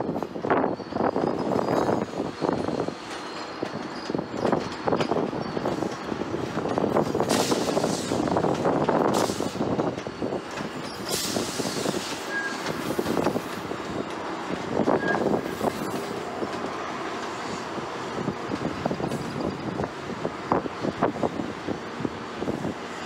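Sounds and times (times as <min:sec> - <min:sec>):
train rolling slowly: 0:00.0 - 0:23.0
high-pitched wheel squeals: 0:00.4 - 0:06.0, 0:10.8 - 0:13.4, 0:14.8 - 0:16.1
wheels clattering over rail joints: 0:00.4 - 0:23.0.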